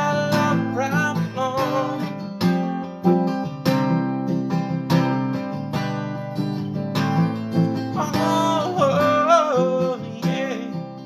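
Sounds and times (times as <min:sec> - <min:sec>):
person singing: 0:00.0 - 0:02.3, 0:07.9 - 0:11.0
acoustic guitar strumming: 0:00.0 - 0:11.0.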